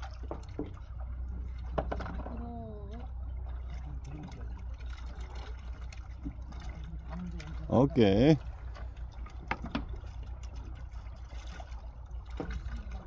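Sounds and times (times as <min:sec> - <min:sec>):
steady low hum: 0:00.0 - 0:13.0
water lapping and trickling: 0:00.0 - 0:13.0
small knocks: 0:09.4 - 0:10.0.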